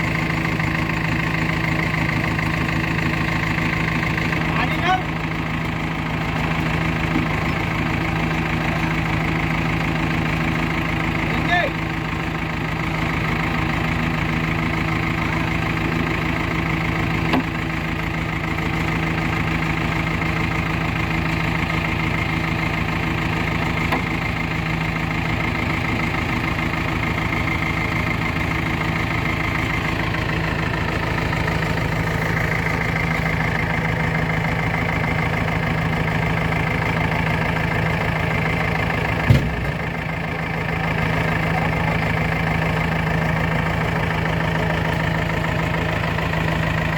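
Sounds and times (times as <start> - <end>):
diesel engine running: 0.0 - 46.9
sharp knock: 39.3 - 39.8.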